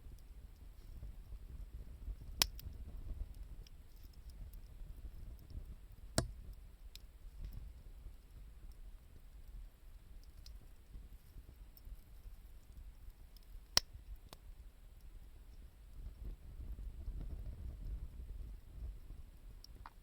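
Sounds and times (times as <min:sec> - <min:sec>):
firewood crackling: 0:00.1 - 0:20.0
firewood popping: 0:02.2 - 0:07.8.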